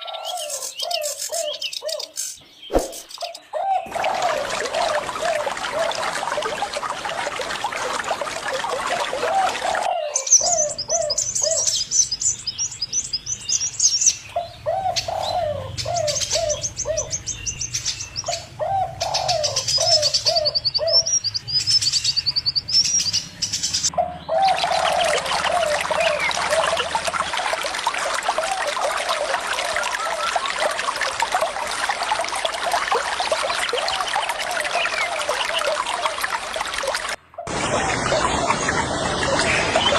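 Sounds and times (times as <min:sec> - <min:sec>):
birds calling: 0:00.0 - 0:31.2, 0:32.2 - 0:39.9
high rapid bird chirping: 0:00.4 - 0:03.6
running water: 0:02.7 - 0:22.0, 0:23.7 - 0:39.9.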